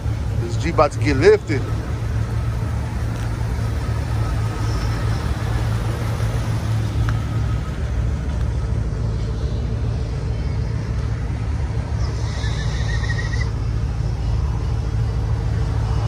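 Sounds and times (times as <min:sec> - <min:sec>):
vehicle engines idling: 0:00.0 - 0:16.0.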